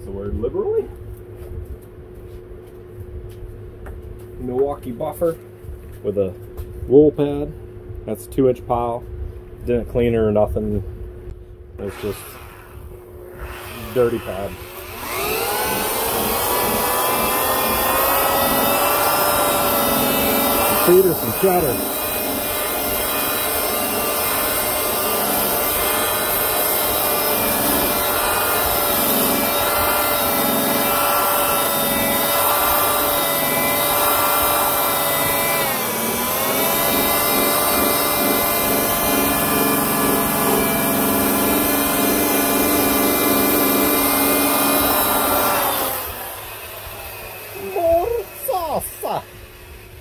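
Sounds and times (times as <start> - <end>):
polishing buffer motor whine: 11.8 - 50.0.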